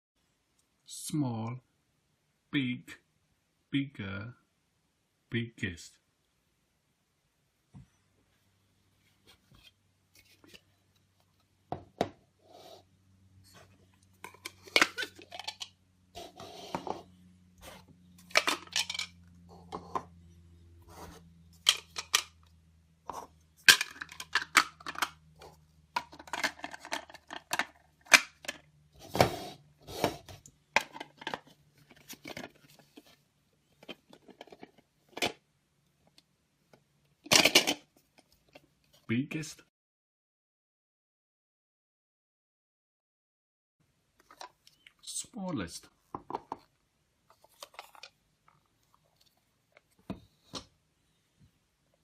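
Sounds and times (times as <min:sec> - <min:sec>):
plastic cups clattering: 0:14.2 - 0:17.0, 0:18.2 - 0:20.1, 0:21.6 - 0:22.4, 0:23.1 - 0:29.3, 0:30.0 - 0:33.0, 0:37.3 - 0:37.9.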